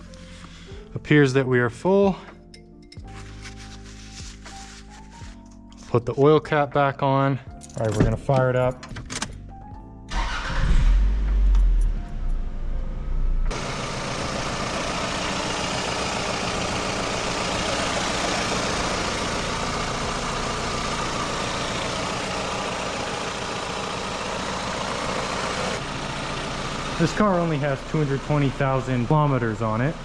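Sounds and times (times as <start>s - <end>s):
car engine idling: 13.4s - 30.0s.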